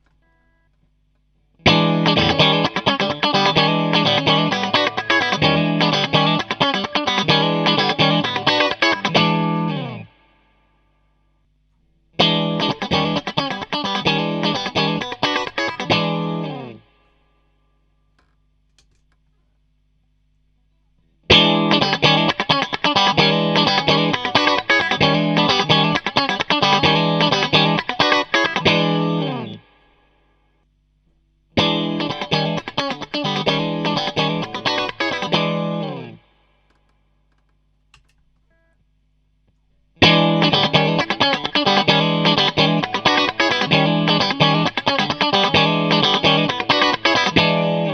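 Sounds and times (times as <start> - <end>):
faint amplifier hum: 0.0 - 47.9
overdriven electric guitar riff: 1.6 - 10.4, 12.2 - 17.0, 21.3 - 29.8, 31.6 - 36.4, 40.0 - 47.9.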